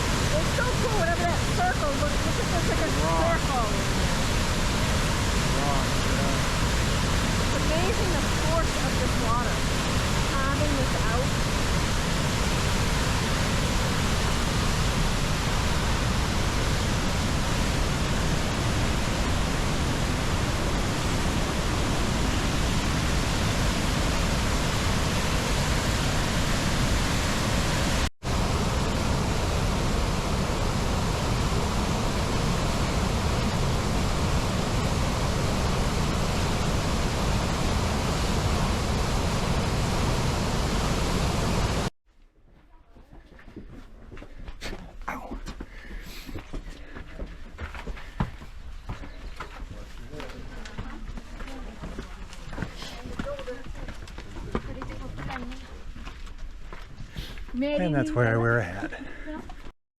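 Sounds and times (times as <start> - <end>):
waterfall roaring: 0.0 - 41.9.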